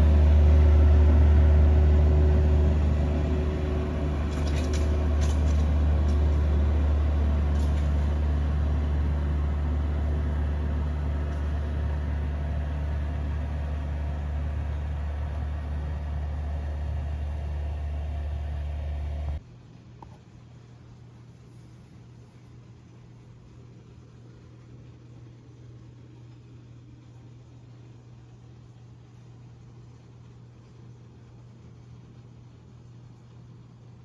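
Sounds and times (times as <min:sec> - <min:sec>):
engine running with low hum: 0:00.0 - 0:19.4.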